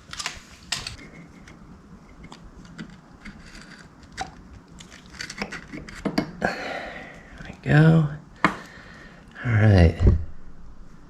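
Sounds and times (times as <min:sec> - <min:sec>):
hand tools clicking and scraping: 0:00.0 - 0:06.5.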